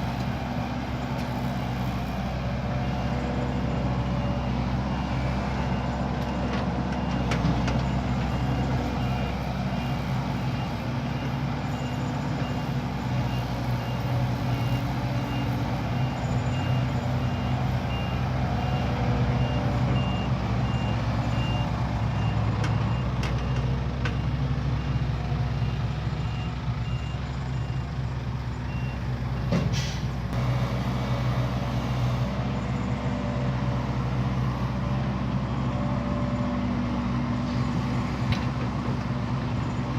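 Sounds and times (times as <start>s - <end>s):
diesel truck engine running: 0.0s - 39.9s
reversing alarm beeps: 2.8s - 29.5s.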